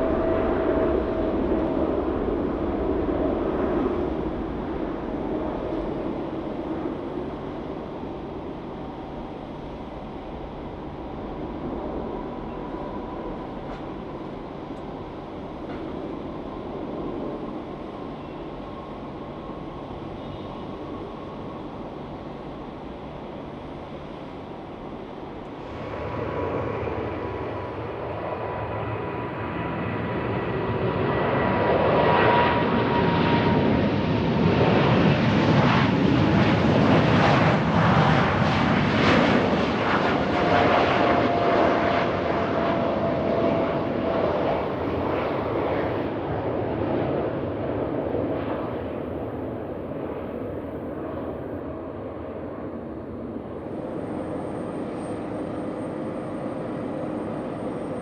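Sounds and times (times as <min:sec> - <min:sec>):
jet airliner passing by: 0:00.0 - 0:58.0
jet engine whine: 0:00.0 - 0:58.0.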